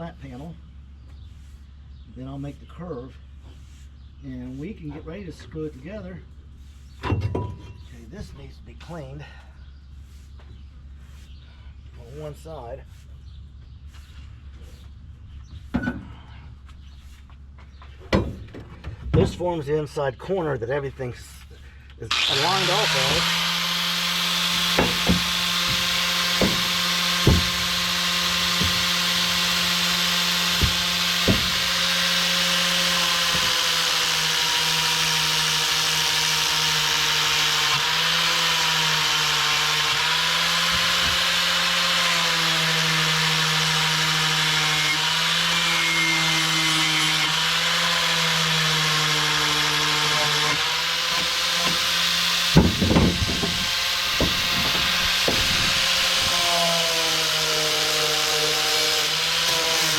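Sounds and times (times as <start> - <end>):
grinder on sheet metal: 22.1 - 59.9.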